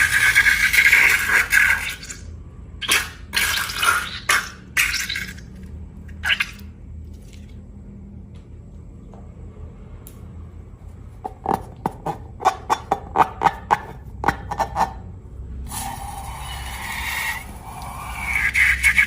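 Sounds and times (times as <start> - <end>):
wet squelches: 2.8 - 7.5
liquid pouring: 2.9 - 7.5.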